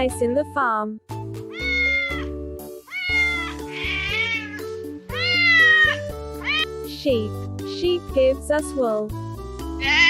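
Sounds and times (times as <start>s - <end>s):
background music: 0.0s - 10.0s
cat meowing: 1.5s - 6.9s, 9.8s - 10.0s.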